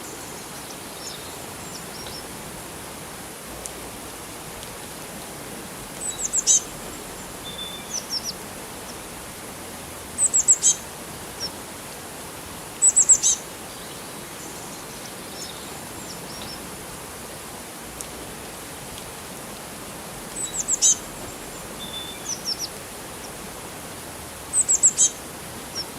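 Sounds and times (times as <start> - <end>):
running water hiss: 0.0 - 25.9
small birds chirping: 6.0 - 9.0, 10.2 - 10.8, 12.8 - 16.7, 20.3 - 23.5, 24.5 - 25.9.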